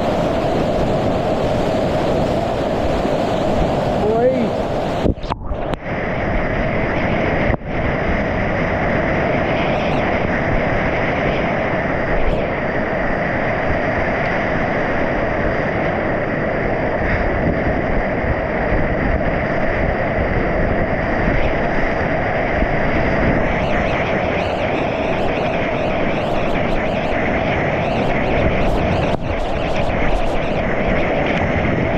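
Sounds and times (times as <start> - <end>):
whitewater rushing: 0.0 - 5.6, 21.6 - 31.9.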